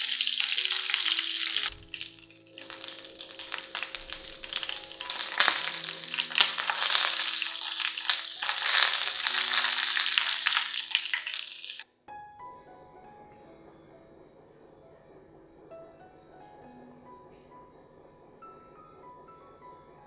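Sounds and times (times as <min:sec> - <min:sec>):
pork sizzling in hot oil: 0:00.0 - 0:11.8.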